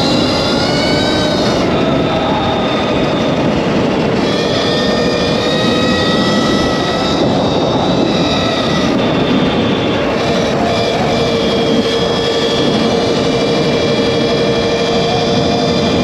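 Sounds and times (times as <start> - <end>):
electric motor whine: 0.0 - 16.0
wind and tyre noise: 0.0 - 16.0.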